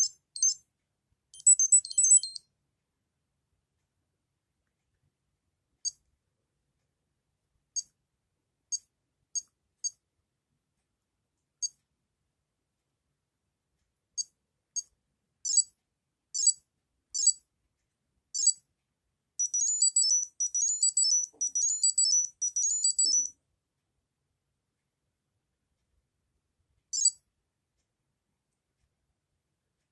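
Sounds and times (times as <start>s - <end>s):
electronic beeps: 0.0s - 0.6s, 1.4s - 2.4s, 19.4s - 23.3s
beeped jingle: 1.4s - 2.4s, 19.4s - 23.3s.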